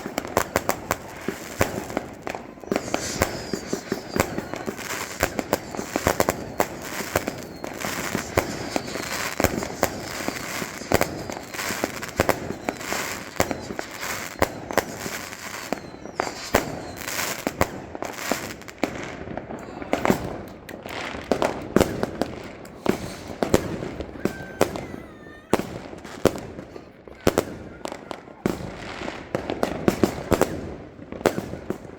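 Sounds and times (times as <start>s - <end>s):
firecracker bangs: 0.0s - 31.9s
firework crackling: 0.0s - 31.9s.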